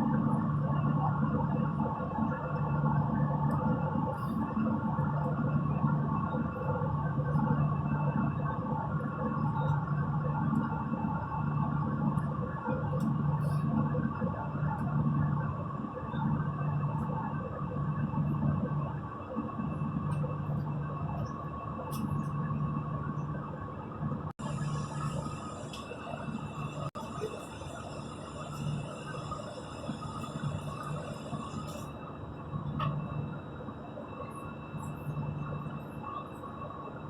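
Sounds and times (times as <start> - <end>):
airplane cabin engine drone: 0.0 - 37.0.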